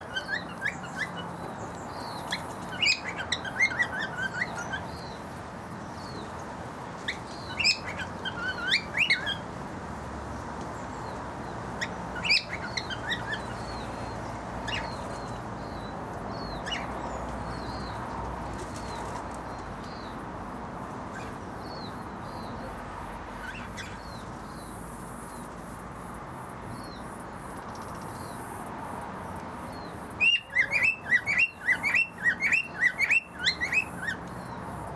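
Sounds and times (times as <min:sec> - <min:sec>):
small birds chirping: 0:00.0 - 0:09.5, 0:10.7 - 0:20.2, 0:21.1 - 0:25.5, 0:29.6 - 0:34.8.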